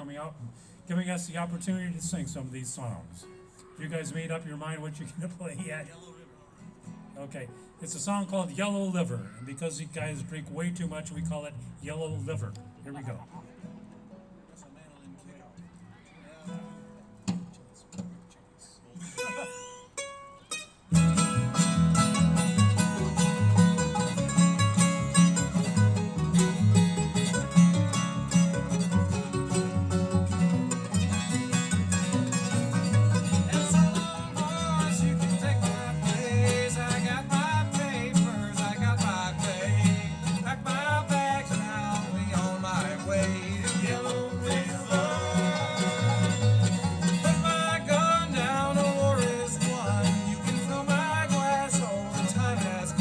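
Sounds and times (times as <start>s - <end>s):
bluegrass band playing: 0.0s - 5.9s, 6.9s - 14.5s, 19.0s - 53.0s
banjo picking: 19.0s - 53.0s.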